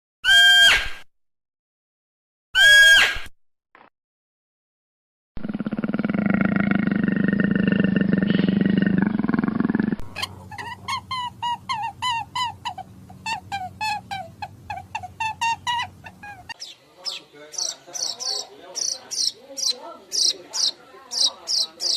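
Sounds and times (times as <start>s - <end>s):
animal roar: 5.4s - 10.4s
animal high chirping calls: 10.1s - 21.9s.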